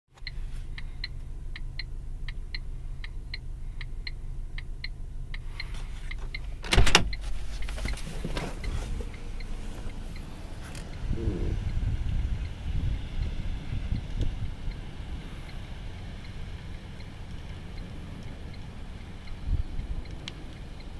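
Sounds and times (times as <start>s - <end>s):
car idling: 0.1s - 20.9s
turn signal flasher ticking: 0.1s - 20.9s
wind noise: 10.8s - 15.4s, 19.4s - 20.8s.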